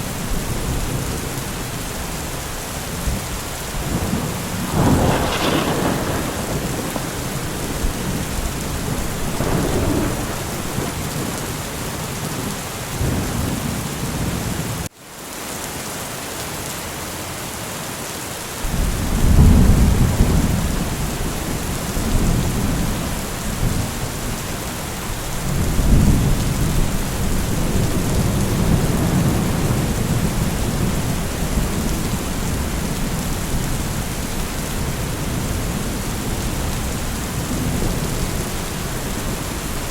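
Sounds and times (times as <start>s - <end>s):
steady rain: 0.0s - 39.9s
rolling thunder: 2.9s - 14.4s, 18.7s - 39.9s.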